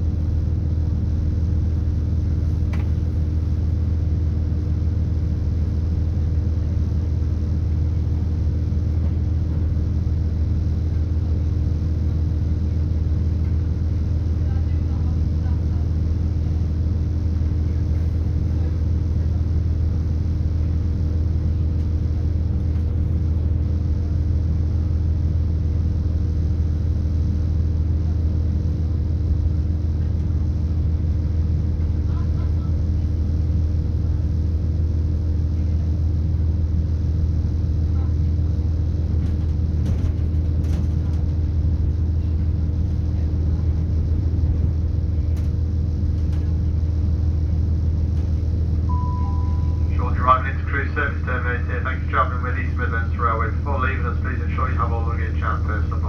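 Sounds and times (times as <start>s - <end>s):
train engine drone: 0.0s - 56.0s
steady humming tones: 38.8s - 56.0s.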